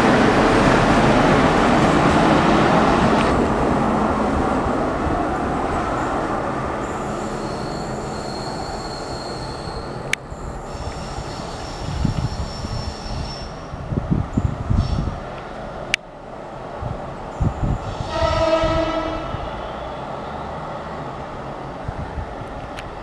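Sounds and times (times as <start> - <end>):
railway coaches rumbling over rails: 0.0 - 23.0
high wheel squeal: 6.8 - 13.8, 14.7 - 15.2, 17.4 - 20.8.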